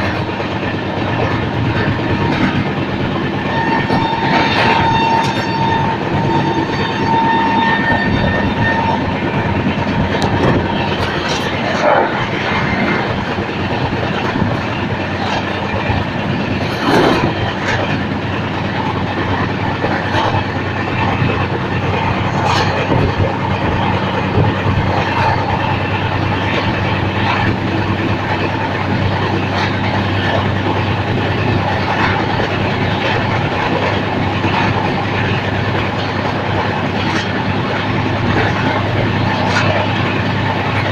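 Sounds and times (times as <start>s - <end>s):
train rumbling on rails: 0.0s - 40.9s
wheels clicking over rail joints: 0.0s - 40.9s
steady high tone: 3.0s - 13.5s.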